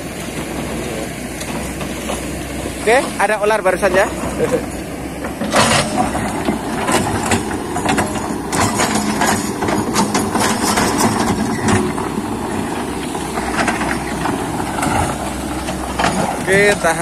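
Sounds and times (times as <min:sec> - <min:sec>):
excavator diesel engine running: 0:00.0 - 0:17.0
machine clanks and knocks: 0:05.2 - 0:12.6, 0:13.3 - 0:17.0.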